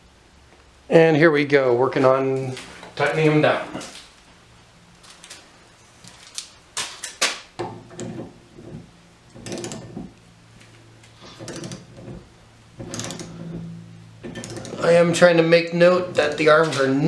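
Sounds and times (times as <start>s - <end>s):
torque wrench ratchet clicking: 11.4s - 12.0s, 12.8s - 13.6s, 14.3s - 14.9s.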